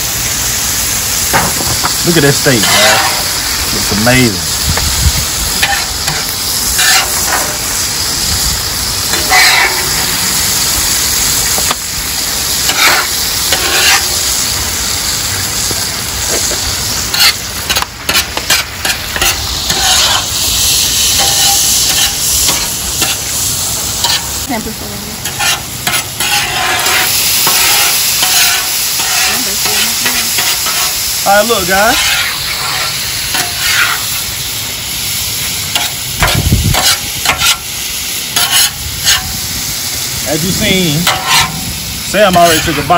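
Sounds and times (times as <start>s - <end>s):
food sizzling on a griddle: 0.0s - 42.9s
metal spatula scraping steel: 2.1s - 3.9s, 5.6s - 7.8s, 9.1s - 10.4s, 12.6s - 14.2s, 17.1s - 23.3s, 24.0s - 24.3s, 25.2s - 31.0s, 31.9s - 34.1s, 35.7s - 37.7s, 38.4s - 39.4s, 40.4s - 42.9s.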